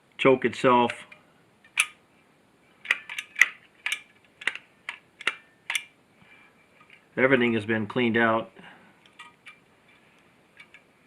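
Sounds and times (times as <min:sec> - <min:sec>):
small metal parts clicking: 0:02.8 - 0:05.9, 0:10.6 - 0:10.9.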